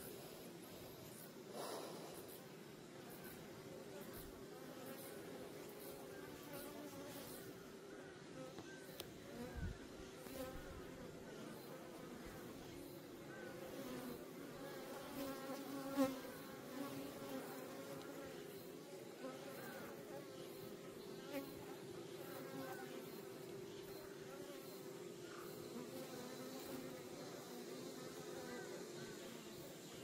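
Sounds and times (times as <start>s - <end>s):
honeybees humming: 3.2s - 30.0s
bee buzzing close past: 9.2s - 29.8s.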